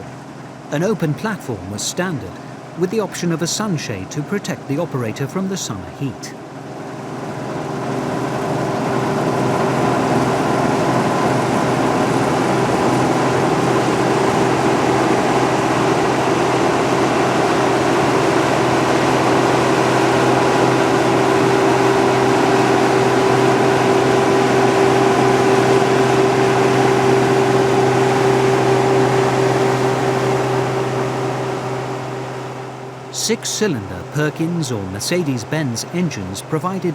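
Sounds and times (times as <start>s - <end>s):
constant machine whine: 0.0s - 36.9s
combine harvester droning: 7.7s - 36.9s.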